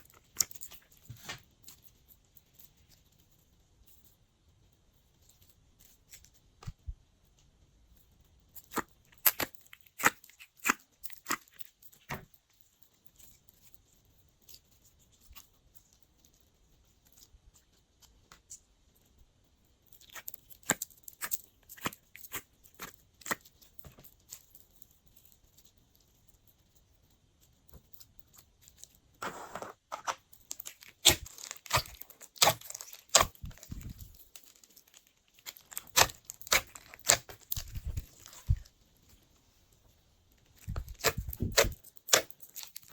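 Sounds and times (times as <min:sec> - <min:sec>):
slime squished by hand: 0:29.2 - 0:34.2, 0:35.4 - 0:38.7, 0:40.6 - 0:42.9.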